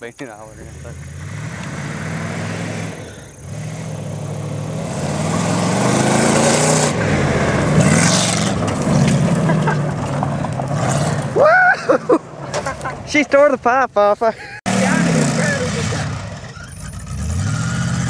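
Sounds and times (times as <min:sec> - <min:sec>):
car engine revving hard: 0:00.5 - 0:11.4, 0:14.7 - 0:18.0
tyres spinning: 0:00.8 - 0:13.3.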